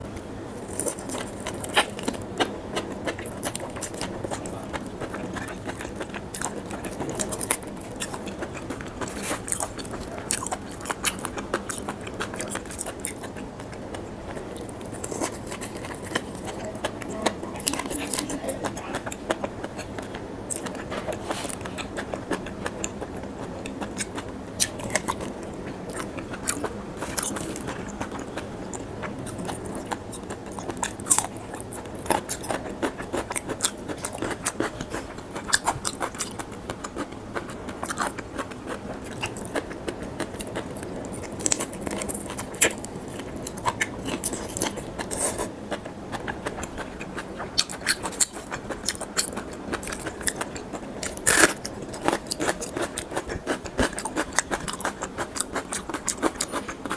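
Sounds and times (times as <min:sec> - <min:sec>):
chewing raw shrimp: 0:00.1 - 0:56.9.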